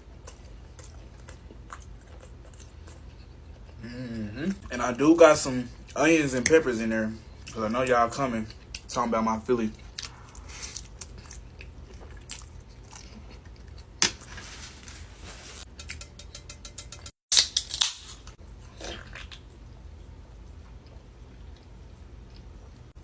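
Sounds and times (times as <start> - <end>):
person chewing and biting: 0.0 - 3.8, 9.8 - 14.0.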